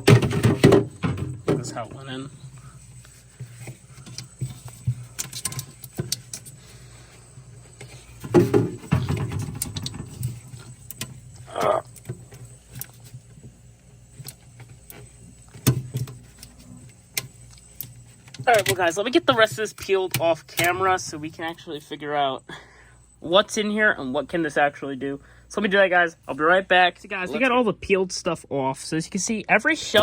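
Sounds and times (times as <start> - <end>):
packaging rustling and scraping: 0.0 - 21.8.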